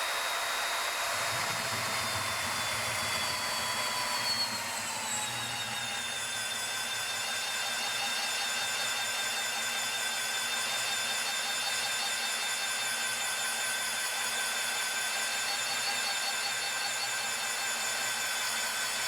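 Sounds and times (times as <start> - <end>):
magnetic drill motor whining: 0.6 - 8.9.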